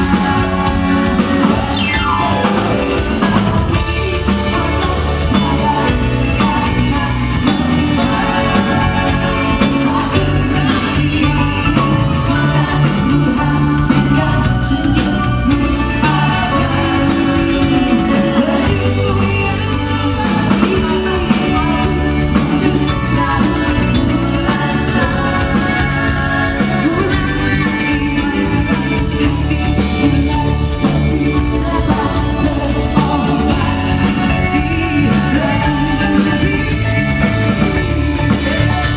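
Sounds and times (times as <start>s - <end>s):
live pop-rock band: 0.0s - 38.9s
person singing: 0.0s - 38.9s.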